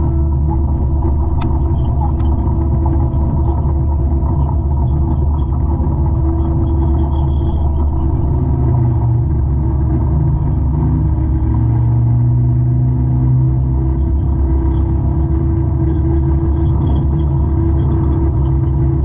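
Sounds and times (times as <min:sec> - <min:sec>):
lower tone: 0:00.0 - 0:19.0
mulcher engine drone: 0:00.0 - 0:19.0.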